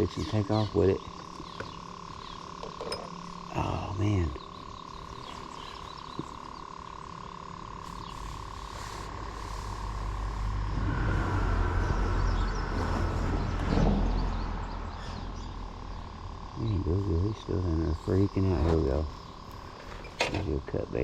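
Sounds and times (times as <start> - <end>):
steady high tone: 8.4 - 19.1
vehicle passing with low rumble: 9.1 - 17.6.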